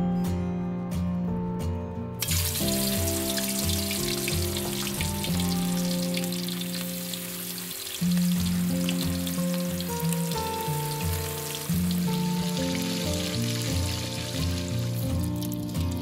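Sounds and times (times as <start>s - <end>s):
chicken sizzling in hot oil: 2.2s - 16.0s.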